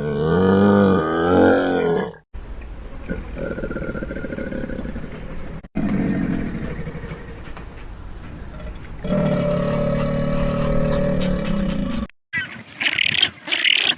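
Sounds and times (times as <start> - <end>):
large animal roaring: 0.0 - 2.2, 5.8 - 7.5, 8.5 - 12.1.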